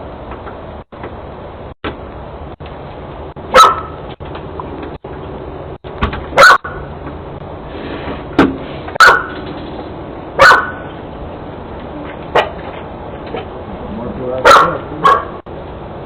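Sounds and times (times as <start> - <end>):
dog barking: 3.5 - 4.0, 6.4 - 6.8, 9.0 - 9.4, 10.4 - 10.9, 14.4 - 15.4.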